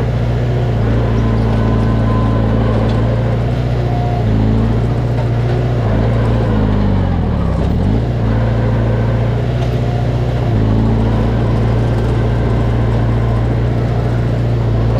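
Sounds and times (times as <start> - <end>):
diesel engine running under load: 0.0 - 14.9.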